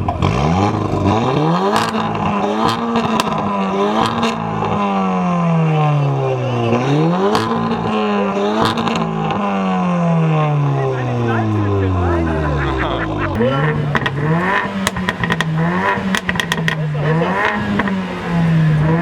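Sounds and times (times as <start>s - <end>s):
car engine revving hard: 0.0s - 19.0s
sharp exhaust pops: 13.4s - 18.0s.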